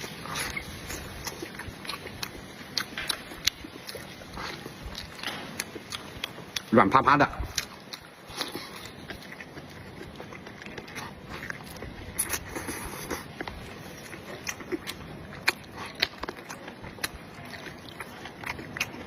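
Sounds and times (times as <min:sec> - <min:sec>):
person chewing: 0:00.0 - 0:19.0.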